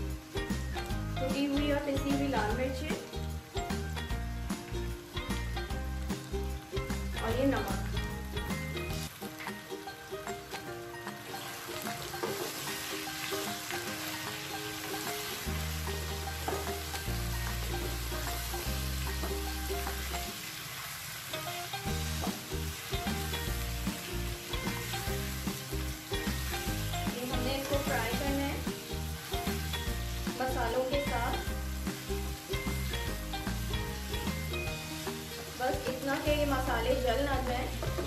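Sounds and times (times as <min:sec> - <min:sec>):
background music: 0:00.0 - 0:20.5, 0:21.4 - 0:38.0
potatoes sizzling in hot oil: 0:00.0 - 0:38.0
spatula stirring in pan: 0:11.4 - 0:20.6.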